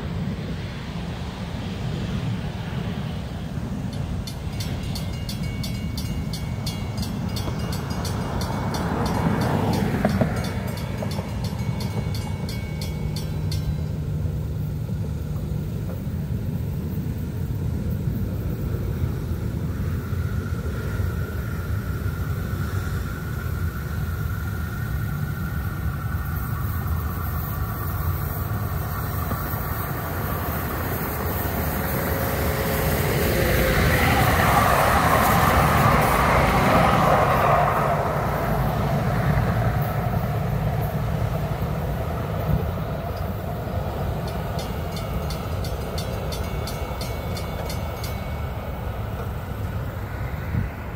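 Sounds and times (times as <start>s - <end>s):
train rumbling past: 0.0s - 50.9s
crossing bell ringing: 3.9s - 14.5s, 44.0s - 49.9s.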